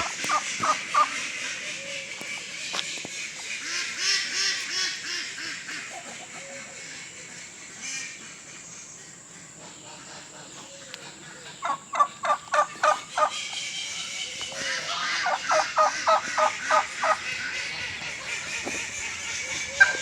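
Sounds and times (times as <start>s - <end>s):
turkey rattling gobble: 0.0s - 2.4s, 11.6s - 20.0s
turkey calling: 0.0s - 8.5s, 10.0s - 20.0s.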